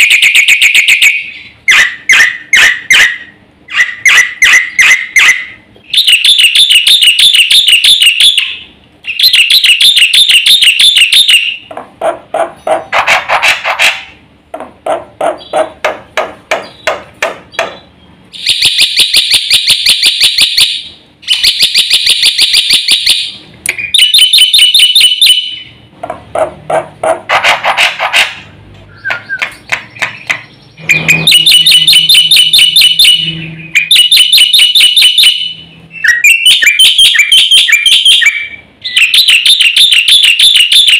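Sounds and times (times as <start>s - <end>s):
bird chattering trills: 14.8s - 15.8s, 26.4s - 31.5s.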